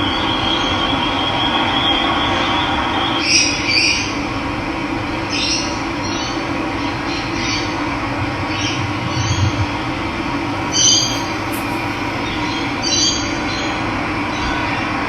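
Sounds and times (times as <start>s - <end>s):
running water: 10.6s - 12.8s.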